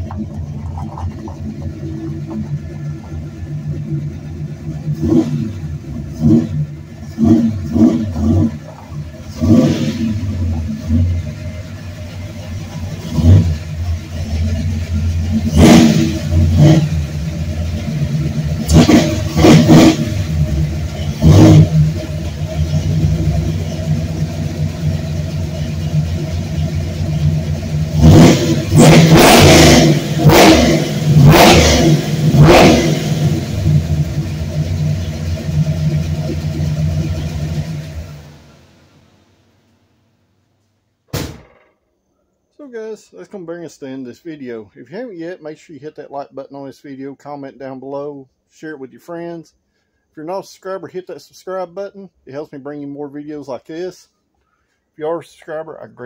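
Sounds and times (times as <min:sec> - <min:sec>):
car engine revving in bursts: 0:00.0 - 0:38.4.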